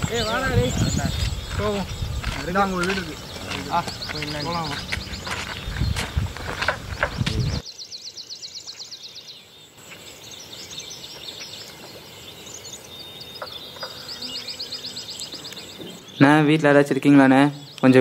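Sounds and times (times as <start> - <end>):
wind rumbling on microphone: 0.0 - 7.6
bird trilling: 0.0 - 9.6.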